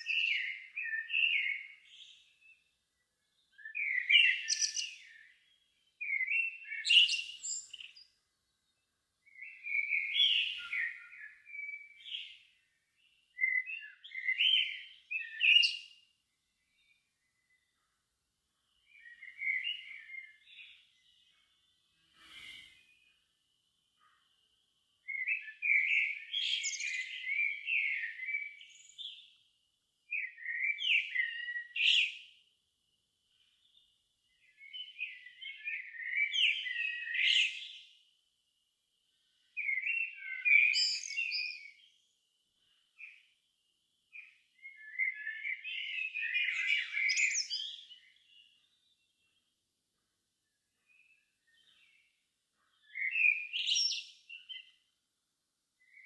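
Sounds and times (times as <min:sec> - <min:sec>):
songbird warbling: 0:03.6 - 0:05.2, 0:44.8 - 0:48.0.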